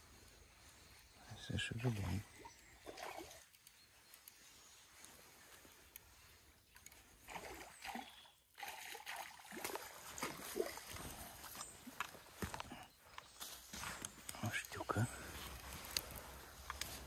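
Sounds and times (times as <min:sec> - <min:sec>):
water splashing and sloshing: 0:01.8 - 0:03.8, 0:04.8 - 0:14.3.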